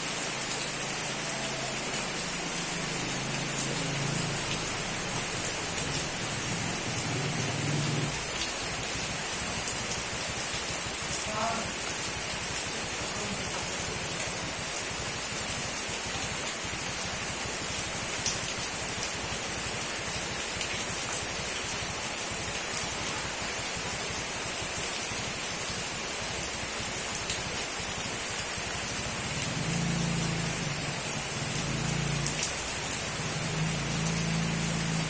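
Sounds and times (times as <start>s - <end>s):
steady rain hiss: 0.0s - 35.0s.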